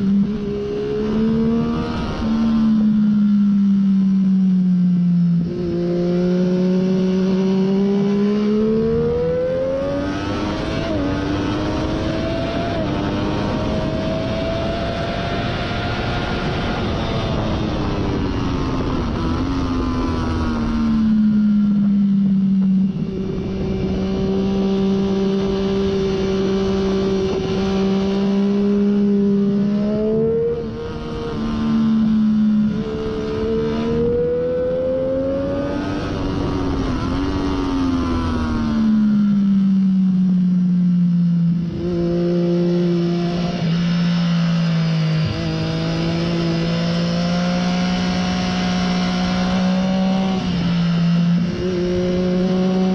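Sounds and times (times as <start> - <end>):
motorcycle engine revving: 0.0 - 52.9
wind on microphone: 5.4 - 39.0.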